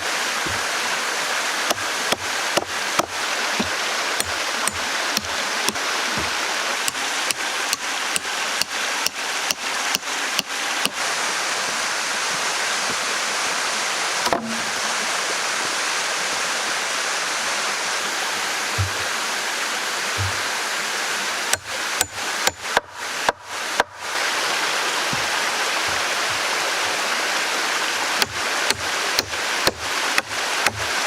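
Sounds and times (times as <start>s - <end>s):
sharp knocks: 0.4s - 0.7s, 1.7s - 7.4s, 18.8s - 19.1s, 20.2s - 20.5s, 25.1s - 26.4s.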